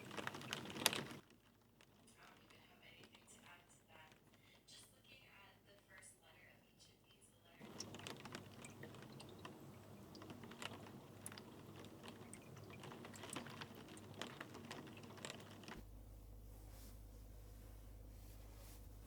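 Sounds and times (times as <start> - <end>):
light clicks and taps: 0.0 - 4.9, 7.6 - 15.8
soft hiss: 1.8 - 19.0
steady low hum: 7.6 - 19.0.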